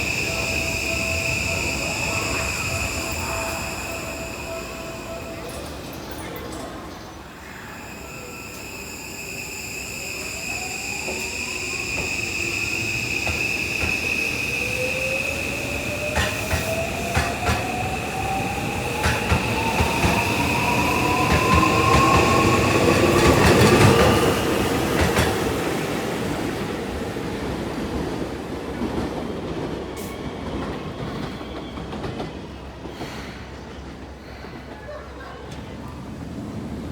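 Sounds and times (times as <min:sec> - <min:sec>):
steady high whistle: 0:00.0 - 0:05.8, 0:07.5 - 0:25.0.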